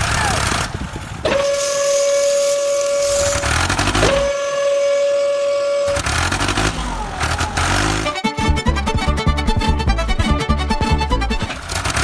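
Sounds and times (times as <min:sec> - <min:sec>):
vehicle horn blasts: 0:01.3 - 0:06.8.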